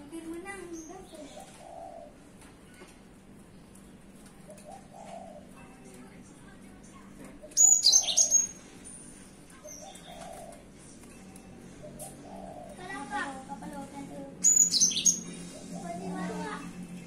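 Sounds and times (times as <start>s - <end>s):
dove cooing: 0.9s - 2.4s, 4.2s - 6.1s, 9.6s - 10.9s, 11.7s - 16.7s.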